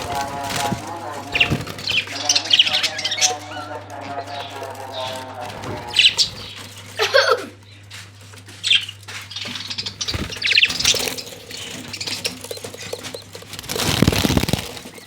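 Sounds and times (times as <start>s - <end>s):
parrot chicks chirping and squeaking: 0.0s - 15.0s.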